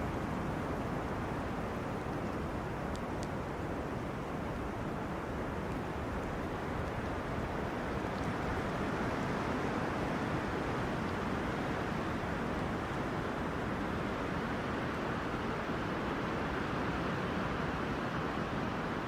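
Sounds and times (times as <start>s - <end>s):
wind rustling through trees: 0.0s - 19.0s.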